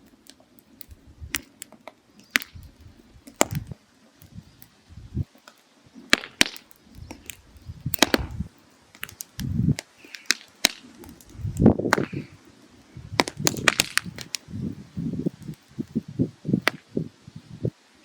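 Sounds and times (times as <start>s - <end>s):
firewood crackling: 0.0s - 18.0s
low rumbling: 0.9s - 1.4s, 2.4s - 5.3s, 6.8s - 8.5s, 9.4s - 9.8s, 11.0s - 17.7s.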